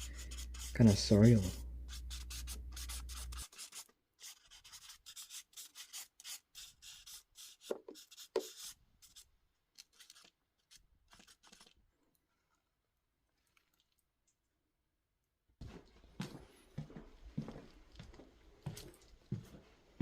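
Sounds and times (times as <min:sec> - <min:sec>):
pen scribbling on paper: 0:00.0 - 0:09.2.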